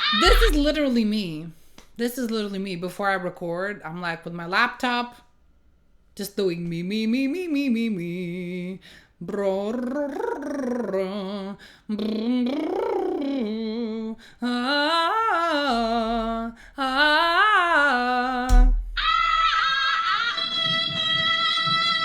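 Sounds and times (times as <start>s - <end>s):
high held vocal note: 0.0s - 0.9s
low thump: 0.2s - 1.0s, 18.5s - 19.5s
breaths: 8.8s - 9.2s, 11.6s - 11.9s, 14.2s - 14.4s, 16.5s - 16.8s
woman humming pitch glides: 9.3s - 16.5s.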